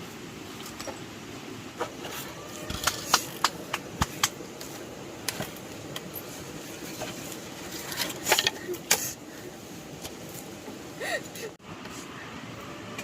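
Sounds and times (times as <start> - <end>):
sharp clicks and knocks: 2.7 - 6.1.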